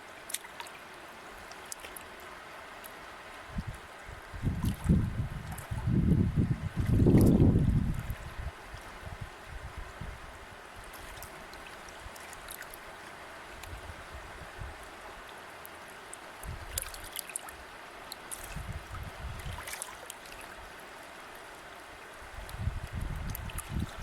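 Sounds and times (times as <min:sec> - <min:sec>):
river water rushing: 0:00.0 - 0:05.8, 0:10.2 - 0:23.0
small water splashes: 0:00.1 - 0:03.8, 0:04.4 - 0:06.0, 0:06.7 - 0:09.0, 0:10.7 - 0:13.9, 0:14.8 - 0:24.0.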